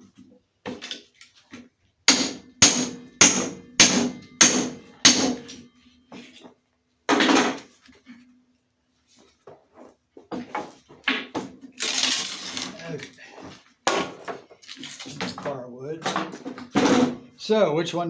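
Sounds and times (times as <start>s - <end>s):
hammer striking steel wedges: 2.1s - 5.7s.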